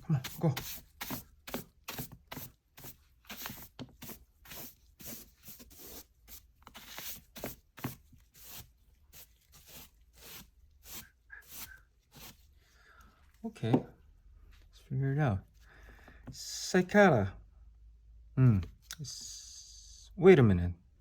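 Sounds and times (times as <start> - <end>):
paper pages rustling: 0.2 - 12.4.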